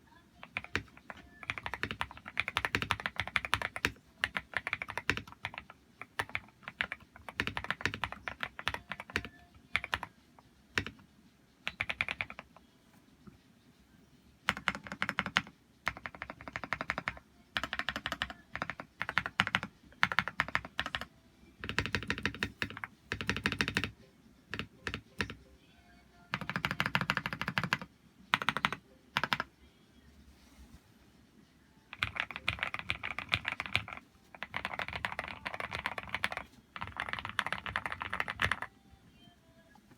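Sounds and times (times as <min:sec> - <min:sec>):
mechanical keyboard typing: 0:00.4 - 0:10.1, 0:10.7 - 0:11.0, 0:11.6 - 0:12.5, 0:14.5 - 0:25.4, 0:26.3 - 0:29.5, 0:31.9 - 0:38.7.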